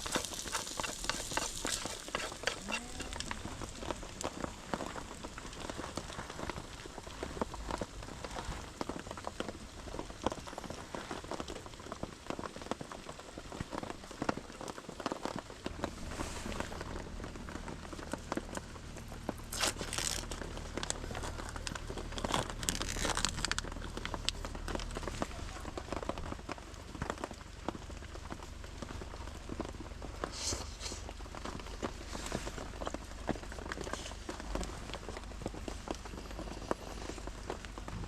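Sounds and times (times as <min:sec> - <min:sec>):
rain pattering: 0:00.0 - 0:38.0
steady low rumble: 0:15.7 - 0:38.0.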